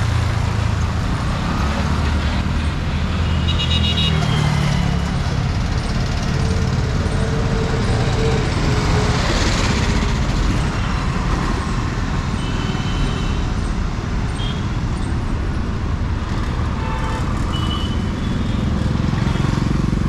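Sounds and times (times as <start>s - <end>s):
vehicle engines running: 0.0s - 20.0s.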